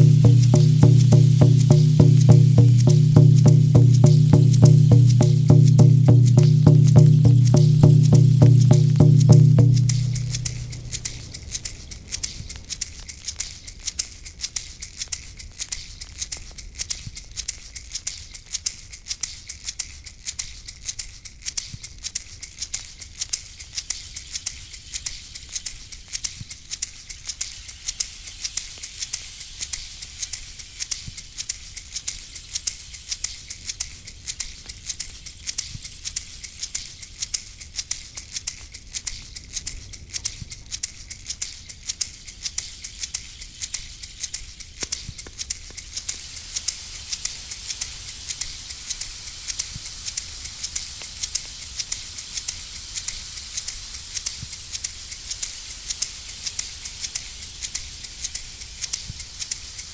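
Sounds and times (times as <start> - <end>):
faint low rumble: 0.0 - 12.4
hand rattle shaken: 0.0 - 59.9.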